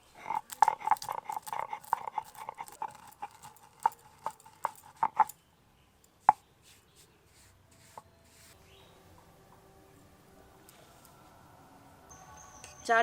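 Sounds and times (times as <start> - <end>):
pestle pounding spices: 0.2 - 5.4.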